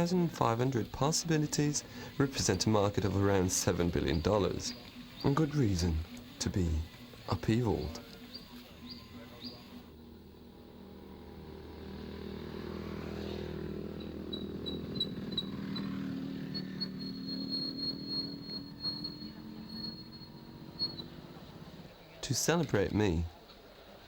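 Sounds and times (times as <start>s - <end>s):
motor running: 0.2s - 21.9s
thin high whistle: 14.7s - 21.5s.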